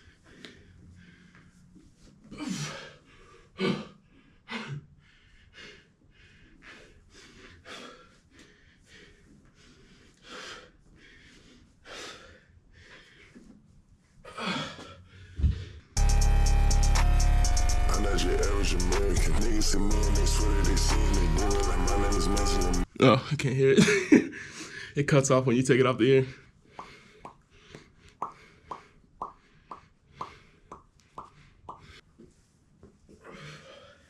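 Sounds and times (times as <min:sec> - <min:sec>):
person breathing hard: 0:00.0 - 0:13.5, 0:24.3 - 0:25.0, 0:26.4 - 0:32.0, 0:33.2 - 0:34.0
loud music: 0:16.0 - 0:22.9.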